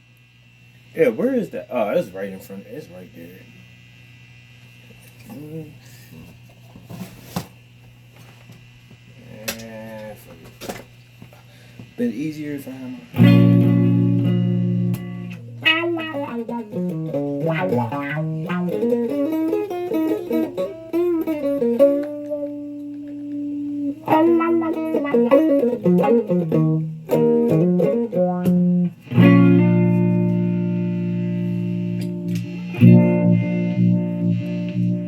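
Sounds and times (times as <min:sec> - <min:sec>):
electric guitar solo: 0:13.1 - 0:35.0.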